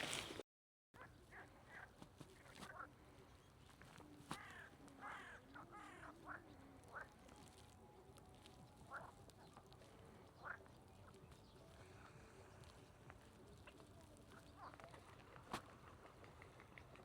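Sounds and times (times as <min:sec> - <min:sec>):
birds calling: 0:00.0 - 0:00.4.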